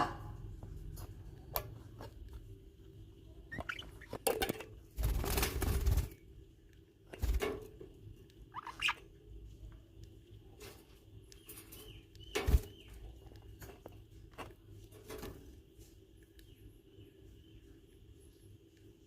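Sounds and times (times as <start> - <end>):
baby birds chirping: 3.5 - 4.2, 8.5 - 9.1.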